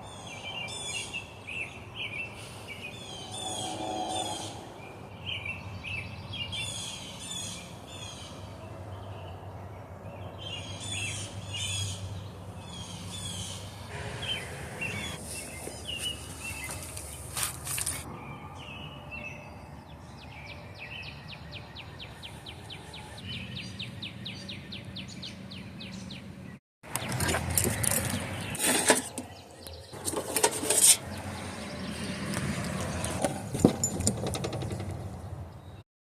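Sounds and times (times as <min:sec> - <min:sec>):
bird chirping rapidly: 0:10.2 - 0:17.3
sharp knocks and clicks: 0:32.3 - 0:35.2.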